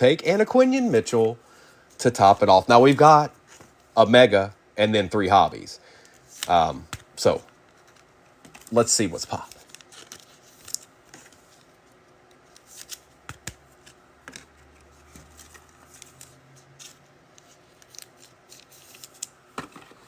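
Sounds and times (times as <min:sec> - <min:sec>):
card packs crinkling and clicking: 0:06.0 - 0:20.0.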